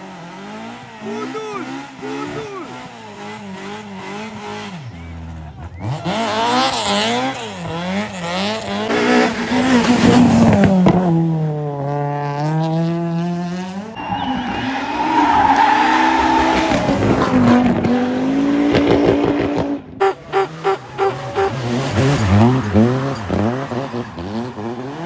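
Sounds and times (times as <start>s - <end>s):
rally car engines revving: 0.0s - 25.0s
tyre squeal: 13.8s - 17.0s, 20.0s - 25.0s.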